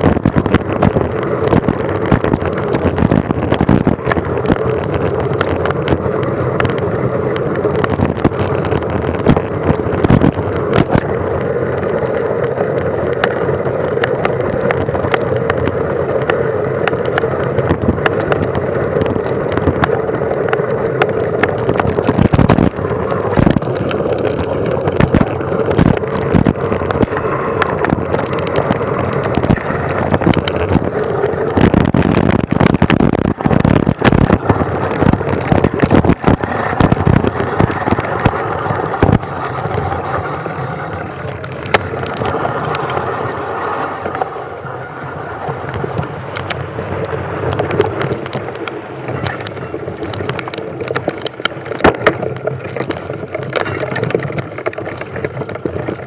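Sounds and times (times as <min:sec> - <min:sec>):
bike rattling and knocking: 0:00.0 - 0:56.0
wind rush: 0:00.0 - 0:56.0.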